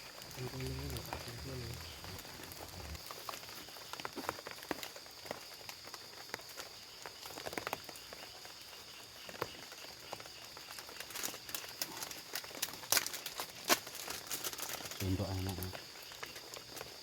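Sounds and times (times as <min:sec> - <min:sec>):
high-pitched insect drone: 0:00.0 - 0:04.4, 0:14.1 - 0:16.8.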